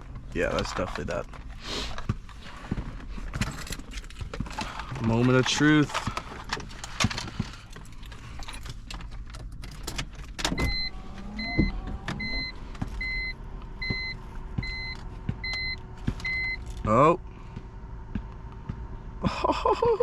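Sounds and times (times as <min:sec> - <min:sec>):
clicks and light rattling: 0:03.3 - 0:10.6
short electronic beeps: 0:10.6 - 0:16.6.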